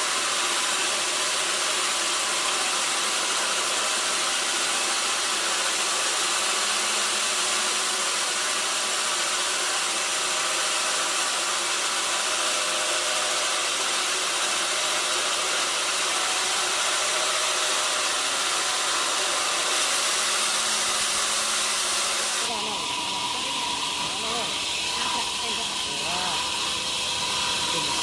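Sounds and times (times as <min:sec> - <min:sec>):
sawmill machinery whooshing: 0:12.2 - 0:28.0.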